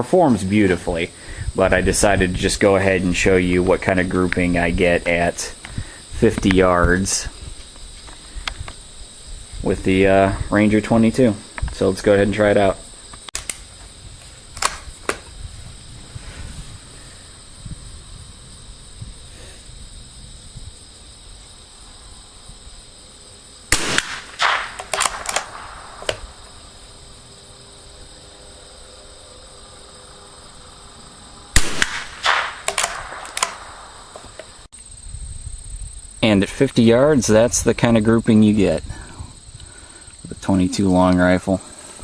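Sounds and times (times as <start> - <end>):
rifle shots: 23.7 - 26.6, 31.6 - 34.4.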